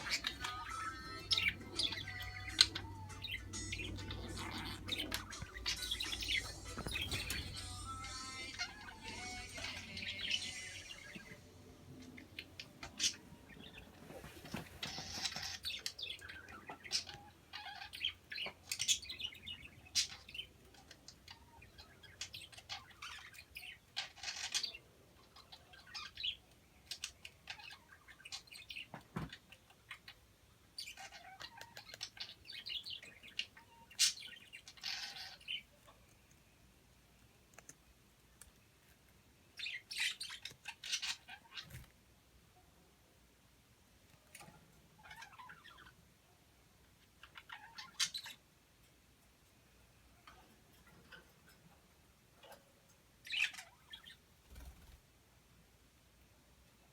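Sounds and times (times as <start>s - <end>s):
budgerigars chirping: 0.0s - 28.9s, 30.8s - 35.7s, 39.6s - 41.9s, 45.0s - 46.0s, 47.1s - 48.4s, 53.2s - 55.0s.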